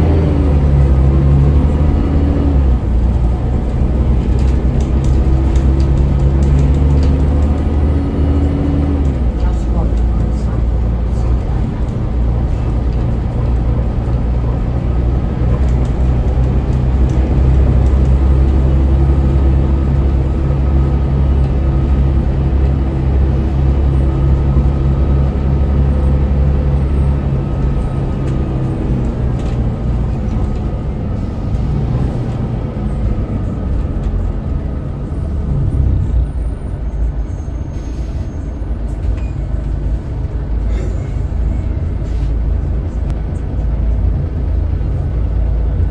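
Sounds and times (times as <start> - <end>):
bus diesel engine running: 0.0 - 45.9
engine whine: 0.0 - 45.9.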